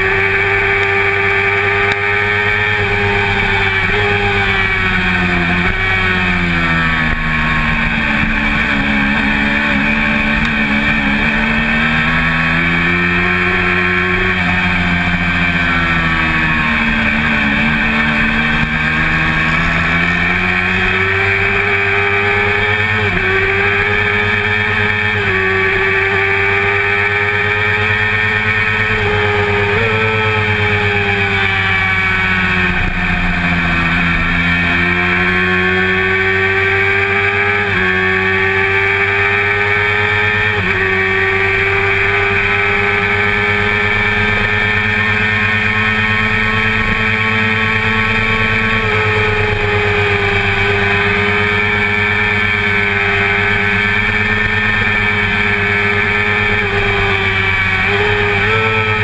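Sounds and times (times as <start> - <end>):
motorcycle engine at racing revs: 0.0 - 59.0.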